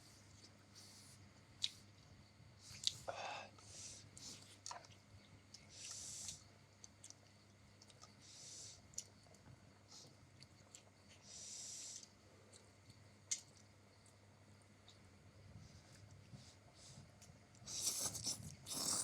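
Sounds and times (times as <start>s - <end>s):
soft breath hisses: 0.0s - 1.2s, 2.6s - 4.5s, 5.7s - 6.4s, 8.2s - 8.9s, 11.1s - 12.2s
mouth clicks while eating: 4.6s - 8.2s, 12.0s - 13.7s.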